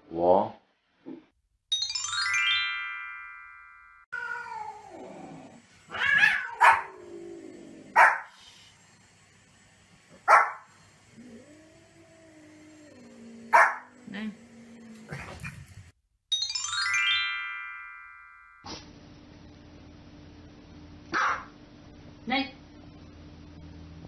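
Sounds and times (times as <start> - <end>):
falling chime jingle: 1.7 - 4.1, 16.3 - 18.6
cat meowing: 4.1 - 5.1, 5.9 - 7.0
small dog yapping: 5.9 - 7.0, 8.0 - 8.3, 13.5 - 13.9, 21.1 - 21.5.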